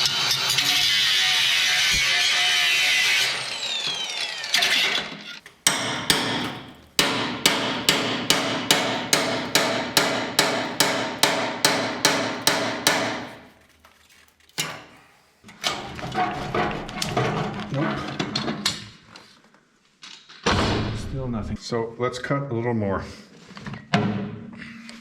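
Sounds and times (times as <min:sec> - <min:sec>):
angle grinder running: 0:00.0 - 0:05.4.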